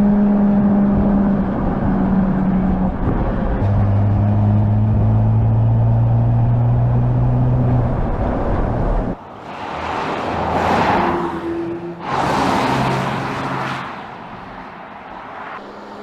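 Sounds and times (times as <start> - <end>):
car engine low drone: 0.0 - 12.1
tyre and road noise: 0.0 - 16.0.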